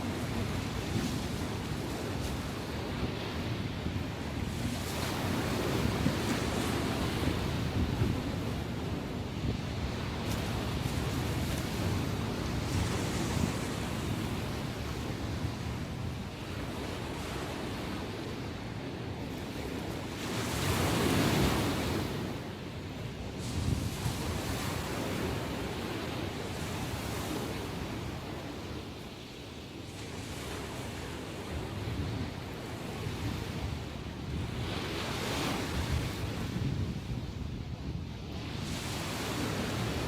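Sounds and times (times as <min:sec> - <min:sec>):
wind on microphone: 0:00.0 - 0:29.1, 0:29.8 - 0:40.0
ocean waves breaking on shore: 0:00.0 - 0:40.0.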